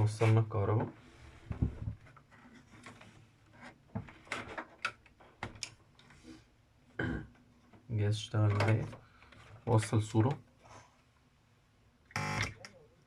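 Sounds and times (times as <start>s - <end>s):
handling knocks and clicks: 7.7s - 9.5s.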